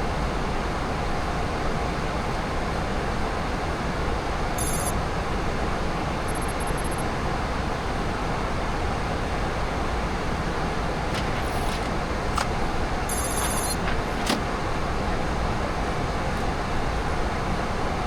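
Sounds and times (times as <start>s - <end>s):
rushing flight deck noise: 10.8s - 16.4s.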